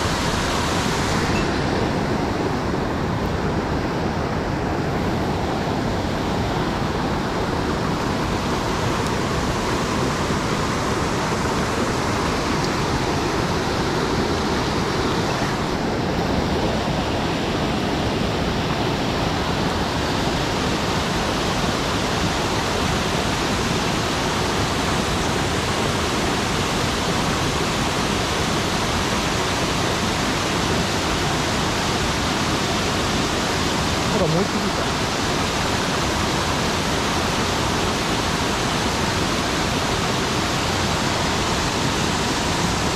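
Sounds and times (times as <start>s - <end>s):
stream water rushing: 0.0s - 42.9s.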